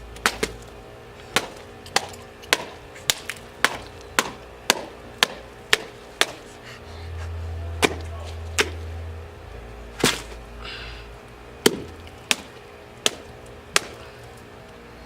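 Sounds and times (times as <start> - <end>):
metal pipe hitting watermelon: 7.2 - 9.0.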